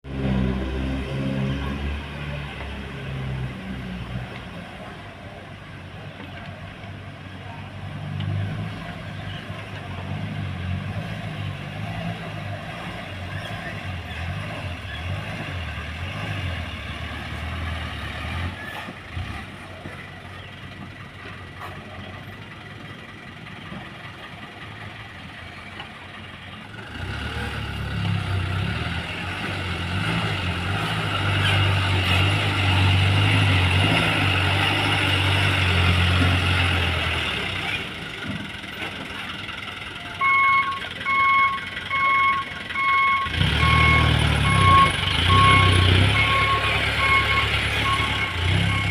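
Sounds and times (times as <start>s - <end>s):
dump truck engine running: 0.1s - 48.9s
reversing alarm beeping: 40.2s - 48.9s.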